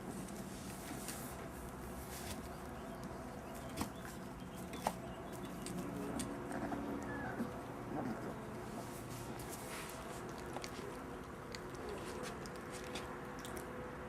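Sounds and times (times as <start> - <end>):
steady low hum: 0.0 - 14.0
puppies clicks and scuffs: 2.2 - 8.3, 9.4 - 13.8.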